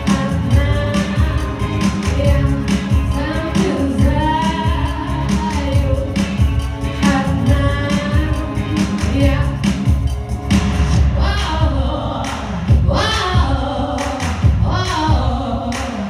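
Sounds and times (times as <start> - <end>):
woman singing: 0.0 - 10.1, 11.0 - 16.0
heavy bass beat: 0.0 - 15.5.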